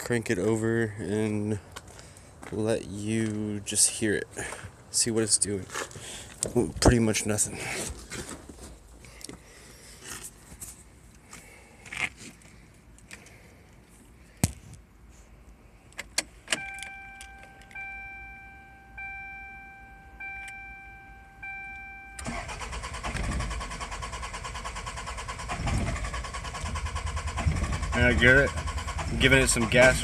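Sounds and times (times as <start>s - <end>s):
car warning chime: 16.5s - 22.6s
starter cranking engine: 22.2s - 30.0s.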